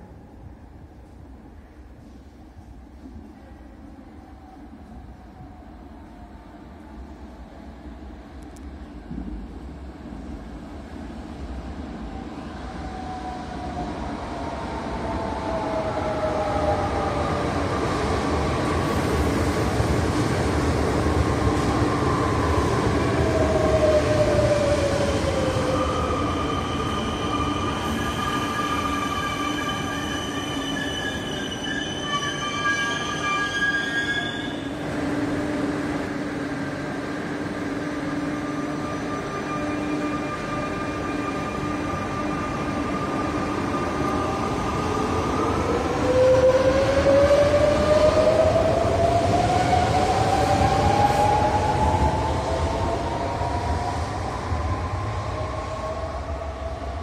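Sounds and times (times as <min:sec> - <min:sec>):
train humming: 0:00.0 - 0:57.0
train whine: 0:02.0 - 0:57.0
wheel and brake squeal: 0:26.3 - 0:34.7.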